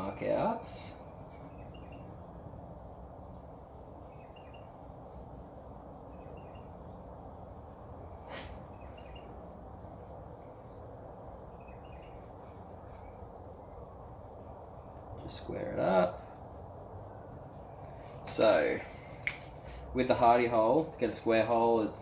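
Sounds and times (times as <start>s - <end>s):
quiet background rumble: 0.0s - 22.0s
bird chirping: 0.7s - 2.4s, 3.8s - 7.8s, 8.5s - 15.4s.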